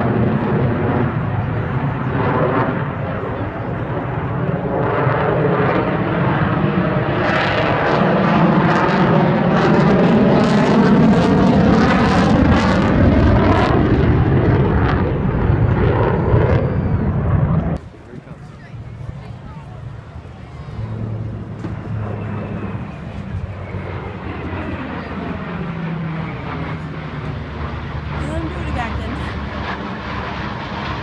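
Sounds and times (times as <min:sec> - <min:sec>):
airplane roar: 0:00.0 - 0:31.0.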